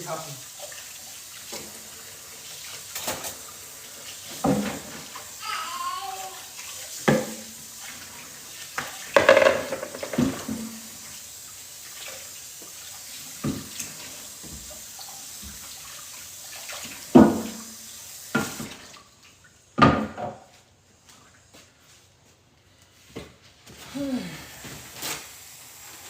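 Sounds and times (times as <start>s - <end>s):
pots and dishes clattering: 4.3s - 5.2s, 8.8s - 10.9s
tap running into sink: 4.3s - 5.3s, 6.9s - 7.6s, 8.7s - 11.0s, 12.6s - 15.8s, 16.6s - 19.0s.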